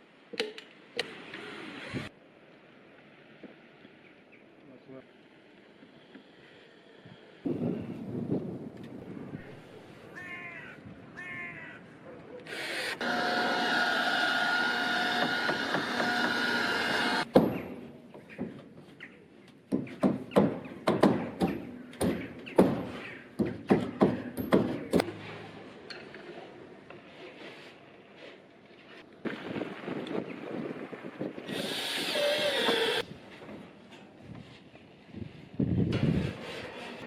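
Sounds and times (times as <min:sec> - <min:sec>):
power tool running: 0:12.5 - 0:17.3, 0:31.5 - 0:33.0.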